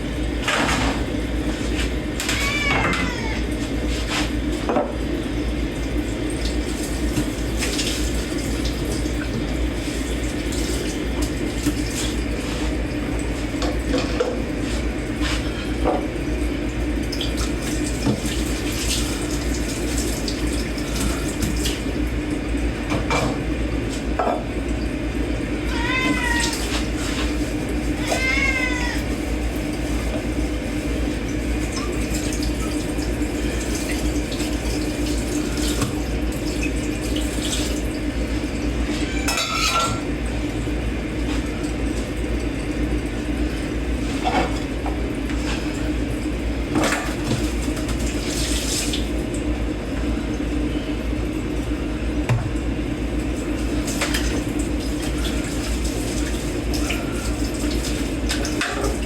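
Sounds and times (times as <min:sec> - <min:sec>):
water running in sink: 0:00.0 - 0:59.0
plates and cutlery clinking: 0:39.2 - 0:40.0.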